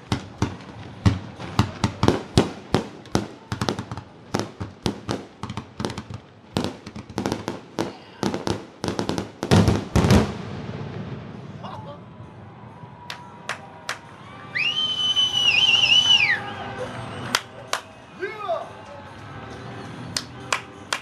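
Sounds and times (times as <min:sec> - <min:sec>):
fireworks bangs: 0:00.0 - 0:12.6.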